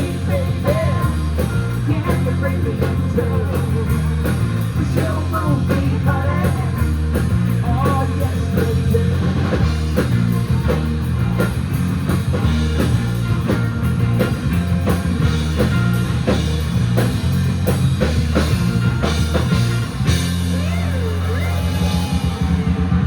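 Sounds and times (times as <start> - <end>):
rock band playing: 0.0 - 23.0.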